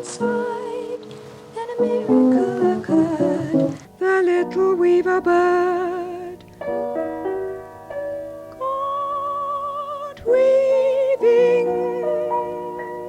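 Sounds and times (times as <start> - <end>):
woman singing with vibrato: 0.0 - 6.4, 8.6 - 12.6
piano accompaniment: 0.0 - 13.0.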